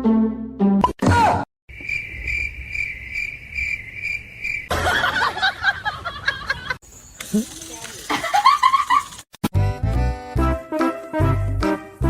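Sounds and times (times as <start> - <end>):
cricket chirping: 1.7 - 5.5.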